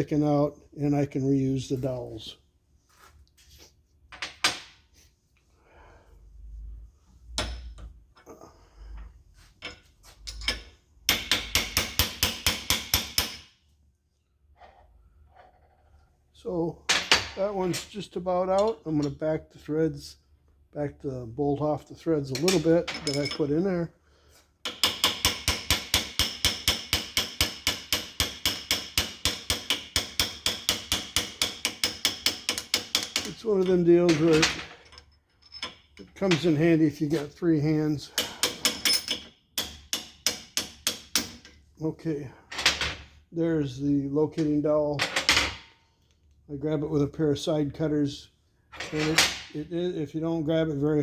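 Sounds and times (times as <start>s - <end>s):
hammer tapping metal punch: 7.3s - 7.9s, 9.6s - 13.5s, 24.6s - 34.4s, 38.2s - 41.5s.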